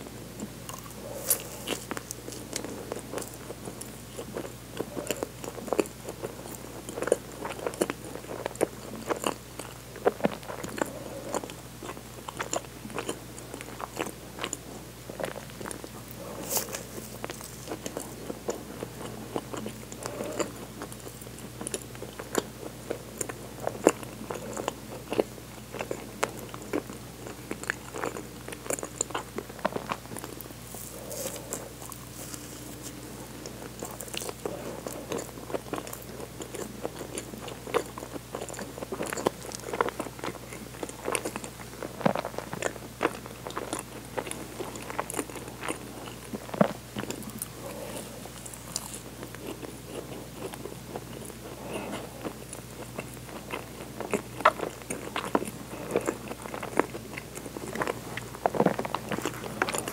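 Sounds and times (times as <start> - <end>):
wet chewing and mouth clicks: 0.4 - 59.9.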